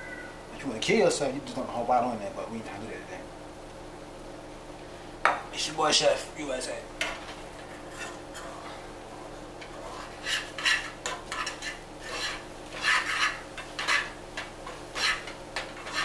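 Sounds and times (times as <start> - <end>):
faint steady hum: 0.0 - 16.0
utensil scraping eggs in pot: 7.0 - 16.0.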